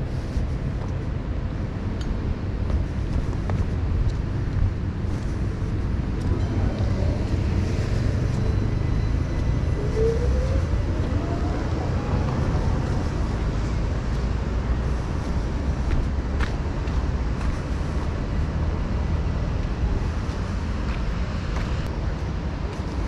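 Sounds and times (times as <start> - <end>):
low rumble of vehicles: 0.0 - 23.0.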